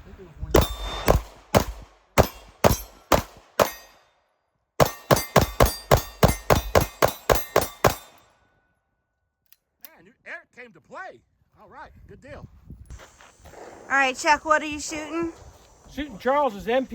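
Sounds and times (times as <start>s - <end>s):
pistol shots: 0.6s - 4.0s, 4.8s - 8.2s.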